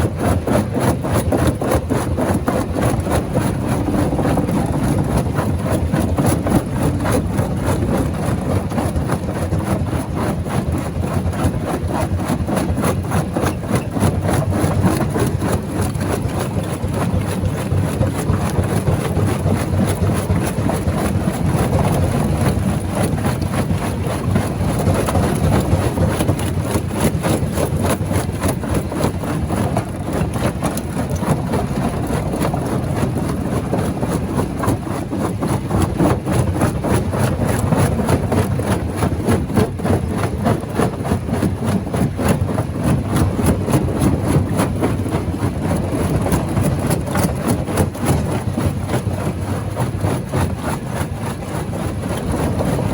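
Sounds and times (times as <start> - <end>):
rock knocking and grinding: 0.0 - 48.8
stone crusher engine drone: 1.7 - 9.4.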